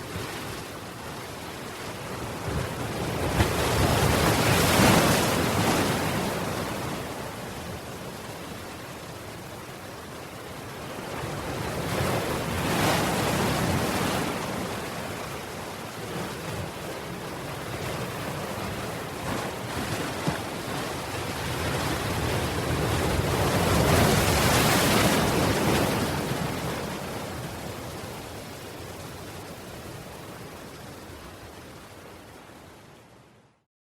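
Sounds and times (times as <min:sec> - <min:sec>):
ocean waves breaking: 0:00.0 - 0:09.4, 0:10.0 - 0:32.8.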